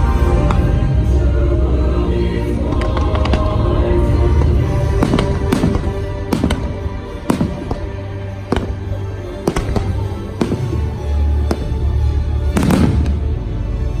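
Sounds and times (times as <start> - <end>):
fireworks bangs: 4.4 - 13.6.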